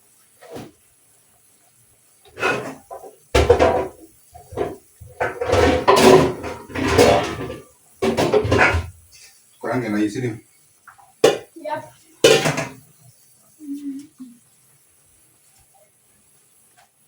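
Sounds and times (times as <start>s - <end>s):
pots and dishes clattering: 2.3s - 9.0s, 10.9s - 11.5s, 12.2s - 12.9s.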